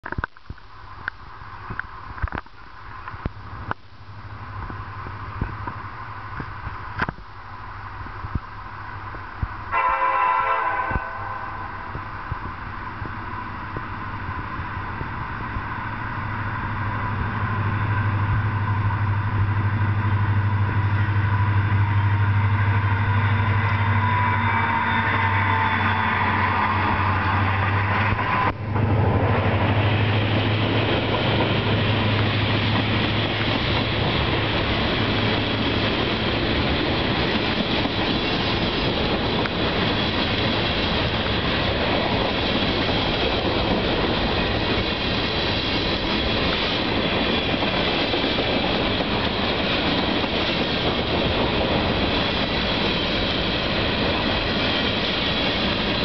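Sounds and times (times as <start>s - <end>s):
diesel locomotive drone: 0.0s - 56.0s
freight train rumbling past: 2.8s - 56.0s
train horn blast: 9.7s - 12.0s, 20.8s - 26.6s.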